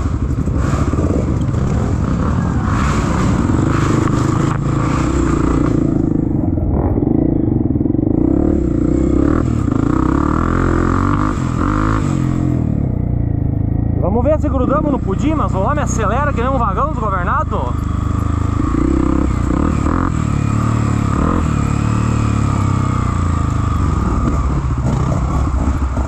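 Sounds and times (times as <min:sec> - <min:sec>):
scraping and clatter over rough ground: 0:00.0 - 0:07.3
motorcycle engine under throttle: 0:00.0 - 0:26.0.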